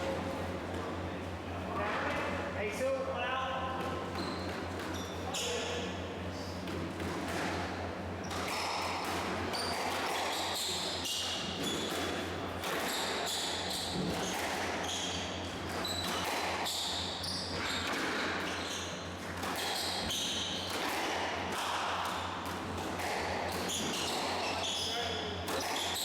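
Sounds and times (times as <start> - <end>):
steady low hum: 0.0 - 10.2
shoes squeaking on court floor: 3.4 - 6.0, 8.2 - 20.9, 23.0 - 26.0
squash ball hitting rackets and walls: 6.6 - 26.0.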